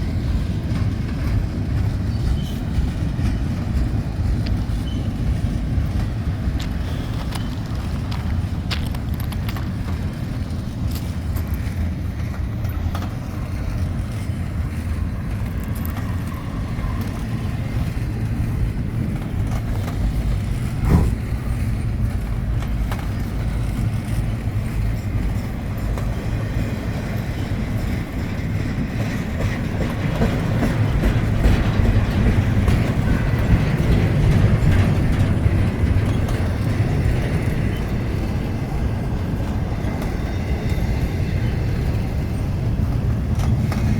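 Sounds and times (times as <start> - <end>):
train wheels rumbling on rail: 0.0 - 43.9
sharp knock: 20.8 - 21.2.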